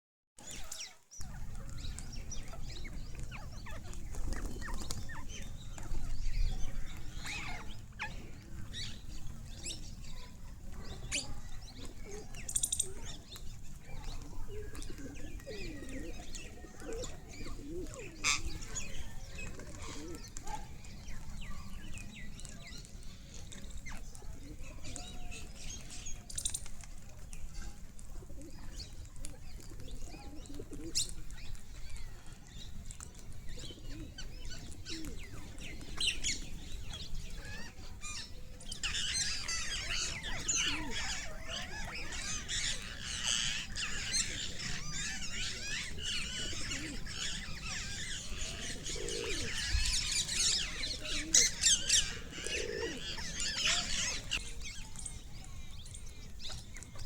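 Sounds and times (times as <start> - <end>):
parrots squawking and chattering: 37.4 - 54.7.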